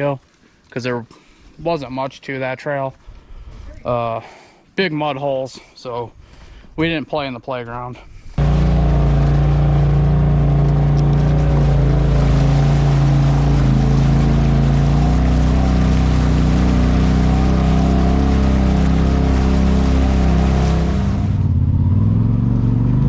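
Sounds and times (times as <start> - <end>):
off-road vehicle engine running: 8.4 - 23.0.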